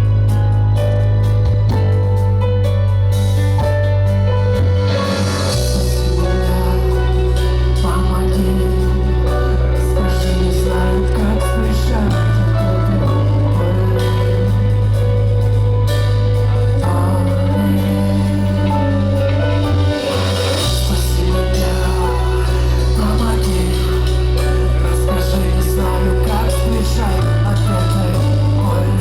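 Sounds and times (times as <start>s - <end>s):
heavy sustained bass notes: 0.0s - 29.0s
live band through pa: 0.0s - 29.0s
person singing: 4.3s - 29.0s.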